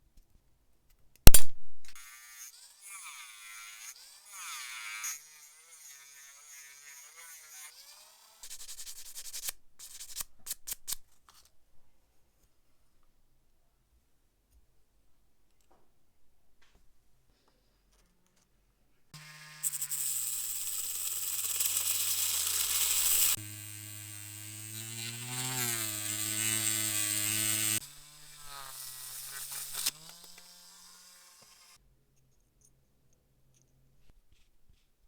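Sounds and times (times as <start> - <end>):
power tool abrasive whir: 19.2 - 31.8.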